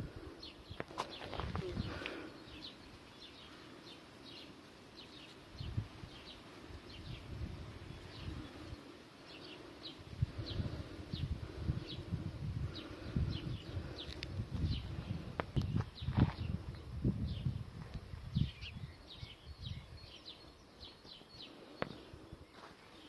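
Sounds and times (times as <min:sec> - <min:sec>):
small birds chirping: 0:00.0 - 0:23.0
low rumble on microphone: 0:10.0 - 0:20.1.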